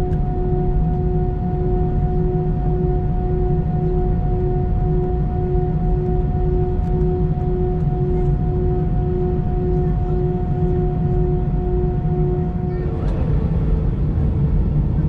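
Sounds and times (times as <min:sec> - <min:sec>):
jet engines idling rumble: 0:00.0 - 0:15.0
pulsing humming tone: 0:00.0 - 0:15.0.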